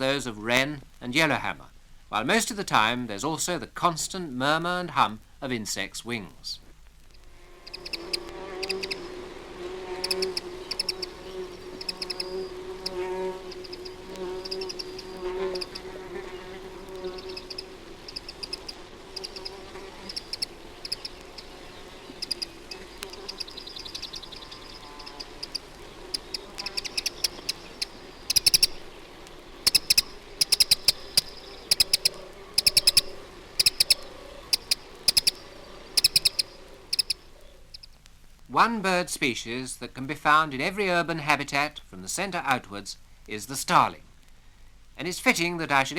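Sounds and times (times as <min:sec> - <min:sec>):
songbirds chirping rapidly: 0:05.3 - 0:38.4
insect wings buzzing: 0:06.1 - 0:38.5.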